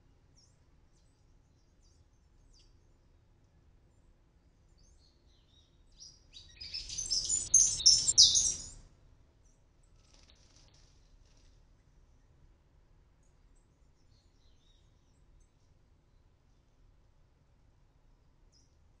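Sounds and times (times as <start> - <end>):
bird high chirps: 6.3 - 8.8.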